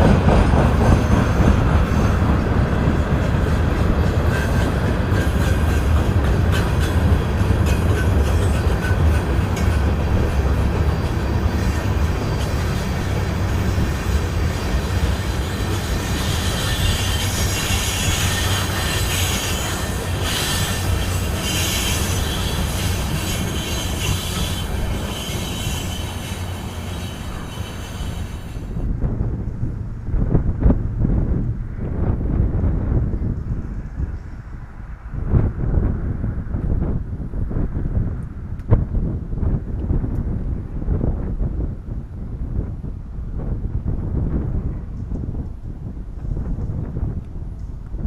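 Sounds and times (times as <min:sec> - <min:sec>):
freight train rumbling past: 0:00.0 - 0:48.0
train wheel squeal: 0:00.4 - 0:02.5, 0:03.5 - 0:28.9.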